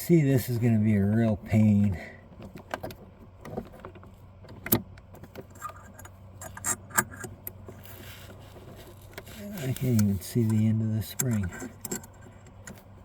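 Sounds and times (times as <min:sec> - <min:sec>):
light metallic clicks and knocks: 0:08.9 - 0:12.9.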